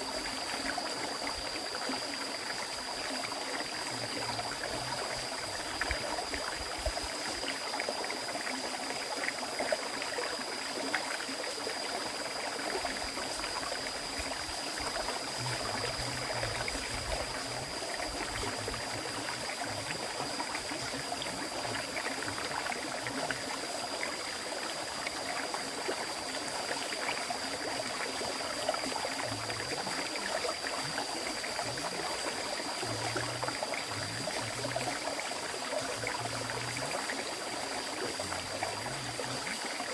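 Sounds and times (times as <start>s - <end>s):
stream flowing over rocks: 0.0s - 39.9s
high-pitched whine: 12.8s - 22.5s.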